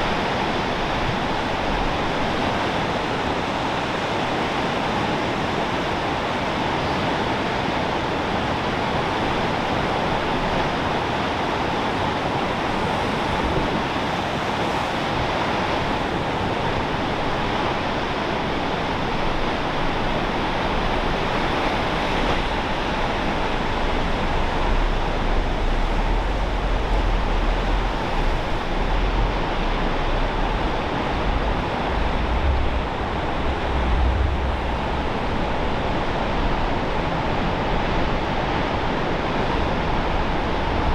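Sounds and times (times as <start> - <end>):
ocean surf: 14.4 - 40.9
wind buffeting microphone: 16.9 - 40.9.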